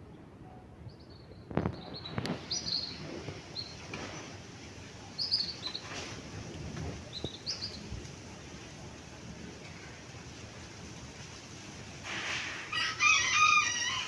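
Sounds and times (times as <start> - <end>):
birds chirping: 0.8 - 6.0, 7.0 - 8.0.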